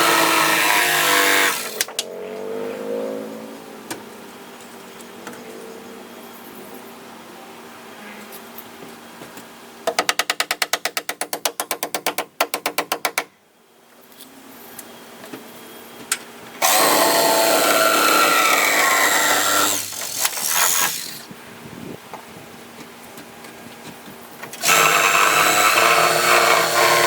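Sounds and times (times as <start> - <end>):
power tool running: 0.0 - 1.9, 16.6 - 21.3, 24.6 - 27.0.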